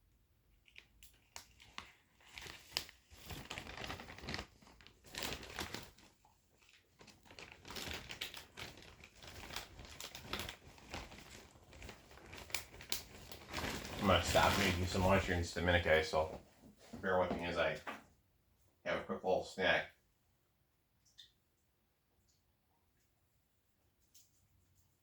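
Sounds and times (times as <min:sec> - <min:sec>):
plastic packaging crinkling: 0:00.6 - 0:16.0.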